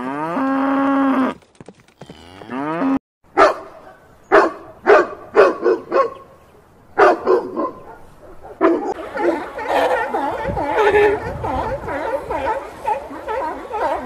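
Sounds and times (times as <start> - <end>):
dog barking: 3.3 - 6.3, 7.0 - 14.0.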